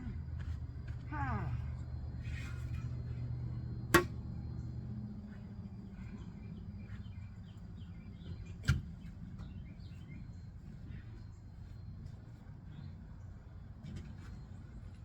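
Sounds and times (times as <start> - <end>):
steady low hum: 0.0 - 15.0
small birds chirping: 4.5 - 11.9.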